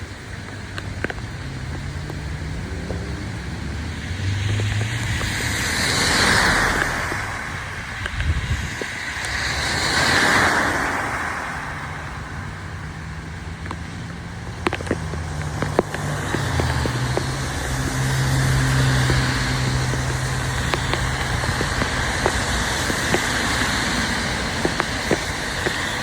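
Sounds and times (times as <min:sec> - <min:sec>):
low engine hum: 0:00.0 - 0:26.0
rain: 0:00.0 - 0:26.0
sharp drips or taps: 0:00.4 - 0:07.4, 0:13.6 - 0:26.0
vehicle swishing past on wet road: 0:01.5 - 0:26.0.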